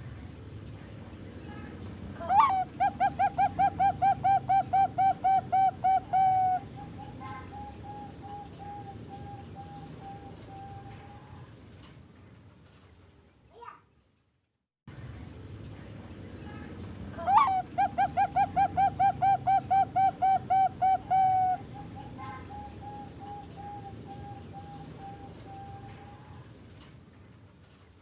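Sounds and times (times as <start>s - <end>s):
dove cooing: 2.2s - 11.5s, 17.2s - 26.5s.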